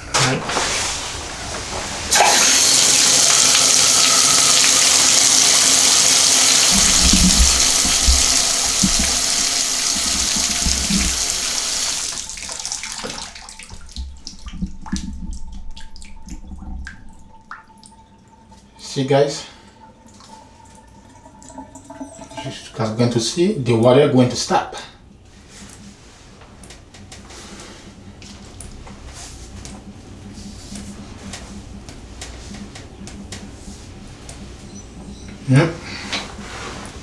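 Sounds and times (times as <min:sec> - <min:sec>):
water running from faucet: 0:00.2 - 0:24.5
water dripping: 0:01.1 - 0:23.7, 0:26.6 - 0:37.0.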